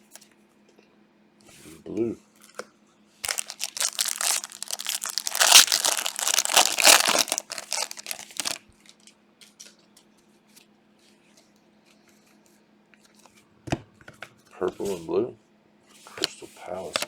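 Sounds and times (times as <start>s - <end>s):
plastic wrapper tearing and crackling: 3.2s - 8.6s.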